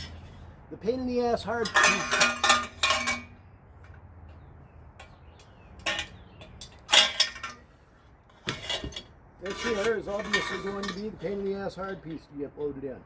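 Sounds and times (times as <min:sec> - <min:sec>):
metal parts clanking: 0:01.6 - 0:03.4, 0:05.8 - 0:07.7, 0:08.3 - 0:11.5.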